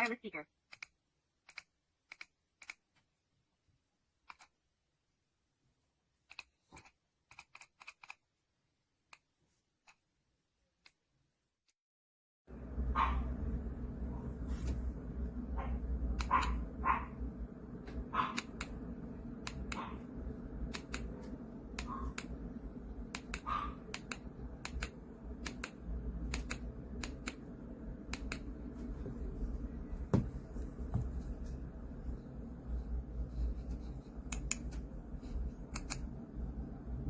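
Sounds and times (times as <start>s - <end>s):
low rumble: 12.5s - 37.0s.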